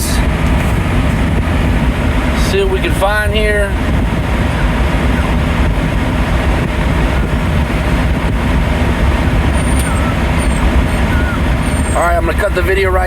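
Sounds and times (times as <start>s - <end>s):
diesel truck engine idling: 0.0s - 13.0s
faint short squeaks: 9.6s - 12.0s.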